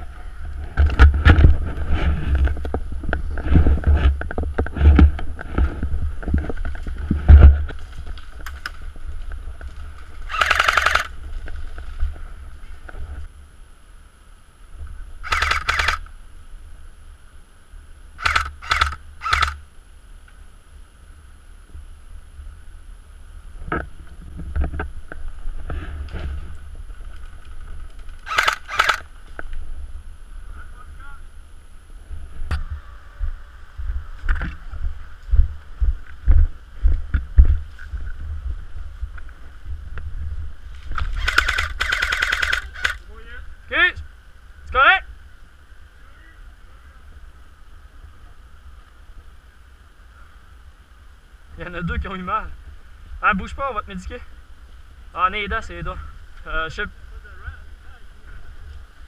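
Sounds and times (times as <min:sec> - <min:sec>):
airsoft gun bursts: 0:10.3 - 0:11.1, 0:15.2 - 0:16.1, 0:18.2 - 0:19.6, 0:28.2 - 0:29.1, 0:41.2 - 0:43.0.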